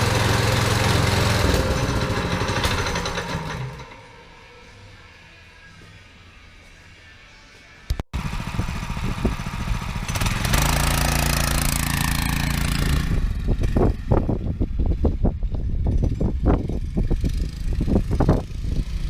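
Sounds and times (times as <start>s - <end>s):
small dirt bike engine running: 0.0s - 4.1s, 8.2s - 19.0s
wind rushing over microphone: 8.2s - 10.6s, 11.8s - 19.0s.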